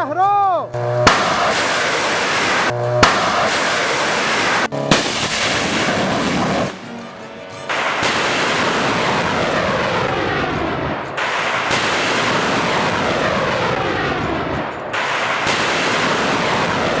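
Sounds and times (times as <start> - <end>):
fireworks whistling: 0.3 - 7.0, 7.7 - 17.0
fireworks hissing: 1.0 - 7.0, 7.7 - 9.8.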